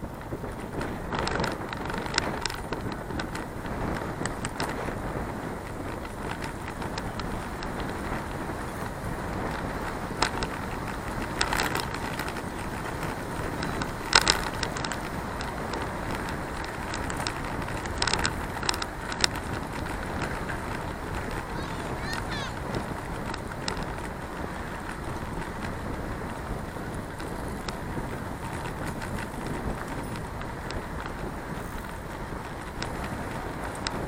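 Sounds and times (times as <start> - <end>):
bicycle clicks and rattles: 0.0 - 34.0
road rumble: 0.0 - 34.0
wind on microphone: 0.0 - 34.0.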